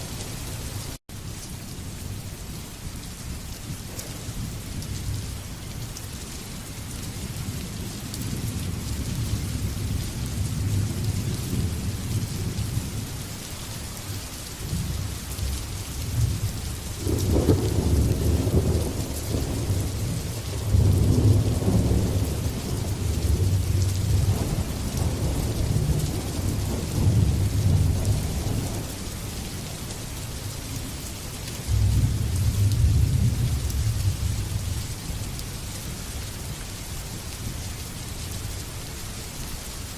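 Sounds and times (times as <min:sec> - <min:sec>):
heavy rain hissing: 0:00.0 - 0:39.9
rolling thunder: 0:14.6 - 0:29.5, 0:31.6 - 0:34.8.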